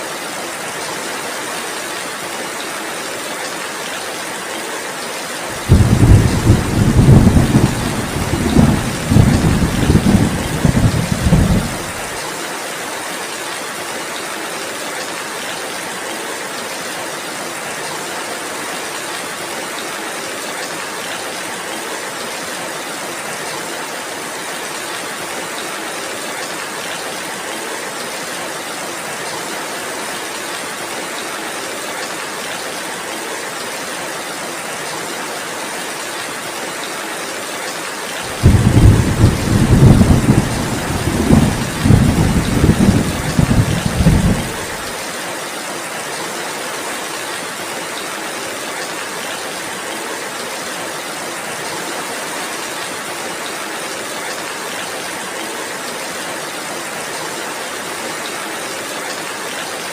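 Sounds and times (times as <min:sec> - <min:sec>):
heavy rain: 0:00.0 - 0:59.9
thunder rumbling: 0:05.6 - 0:12.1, 0:38.3 - 0:44.8.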